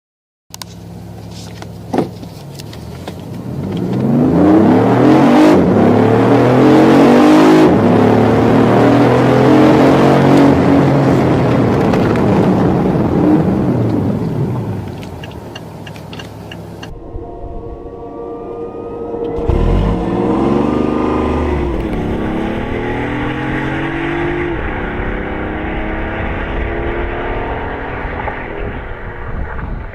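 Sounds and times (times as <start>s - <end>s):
car engine accelerating: 0.6s - 29.9s
thin rising whine: 16.7s - 29.9s.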